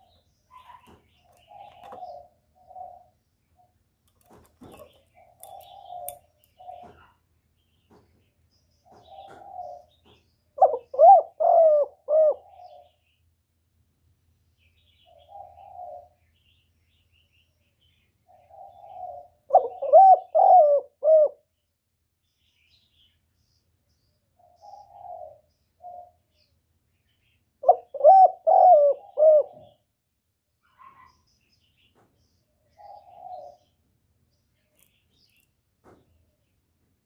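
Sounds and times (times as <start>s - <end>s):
dove cooing: 0.0s - 3.2s, 4.6s - 7.2s, 8.9s - 13.0s, 15.1s - 16.2s, 18.3s - 21.5s, 24.4s - 26.2s, 27.6s - 29.8s, 32.8s - 33.7s.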